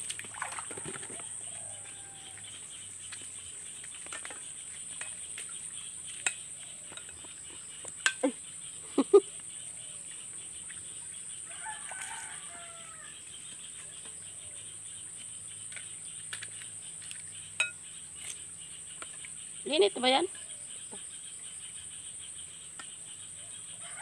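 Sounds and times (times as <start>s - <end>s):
faint rooster crow: 0.6s - 2.5s, 11.4s - 13.2s, 23.7s - 24.0s.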